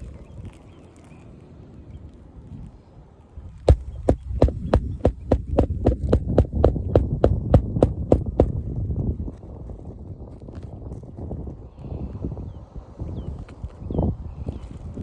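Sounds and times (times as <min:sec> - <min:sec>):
hammer driving nails into roof: 0:03.7 - 0:08.5.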